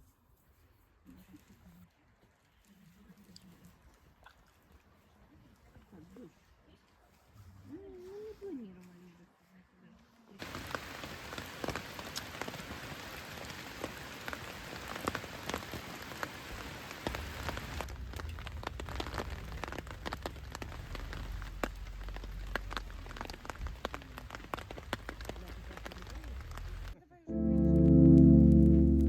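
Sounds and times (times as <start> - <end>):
rain falling on a surface: 10.4 - 27.0
low rumble: 17.8 - 24.8.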